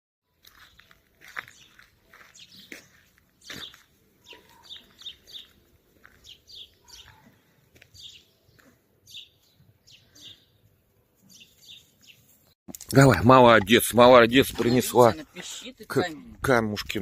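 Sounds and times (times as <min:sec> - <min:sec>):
small birds chirping: 0:00.3 - 0:12.6.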